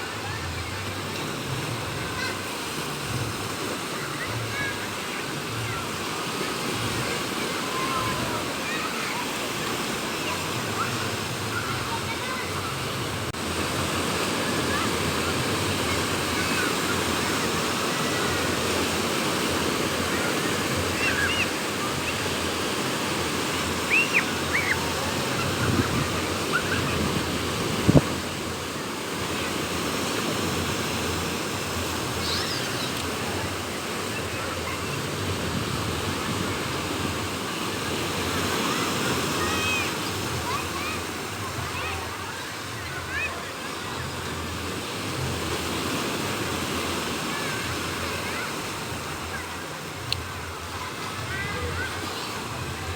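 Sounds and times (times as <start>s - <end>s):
sea waves breaking: 0.0s - 52.9s
wind: 0.0s - 52.9s
high chirping calls: 23.8s - 24.9s.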